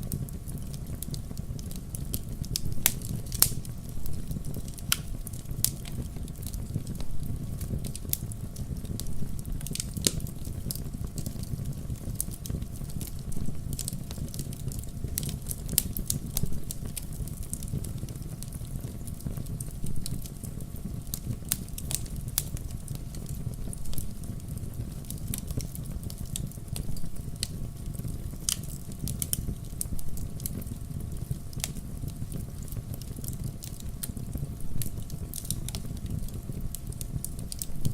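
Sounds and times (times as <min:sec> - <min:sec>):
fire crackling and popping: 0:00.0 - 0:37.9
low rumble of fire: 0:00.0 - 0:37.9.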